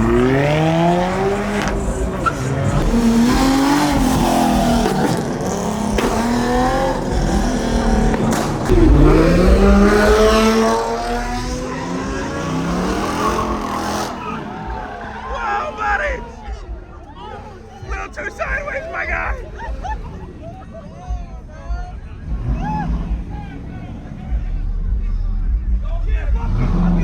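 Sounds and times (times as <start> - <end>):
tyres squealing: 0.0 - 8.8
car engine revving hard: 0.0 - 15.4, 26.3 - 27.0.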